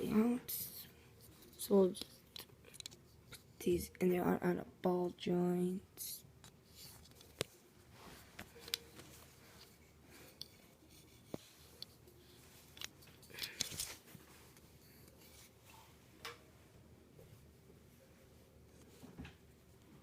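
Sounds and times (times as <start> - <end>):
small plastic parts clicking: 1.9 - 3.4.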